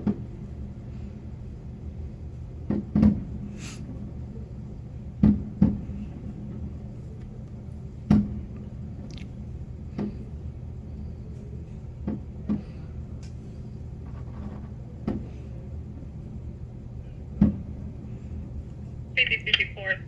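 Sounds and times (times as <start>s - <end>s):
steady low rumble: 14.9s - 20.0s.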